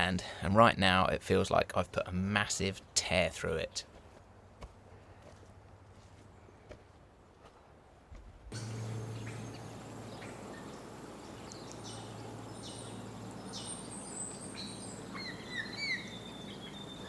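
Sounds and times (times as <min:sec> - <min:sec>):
steady low hum: 0:08.5 - 0:17.0
birds chirping and calling: 0:08.6 - 0:17.0.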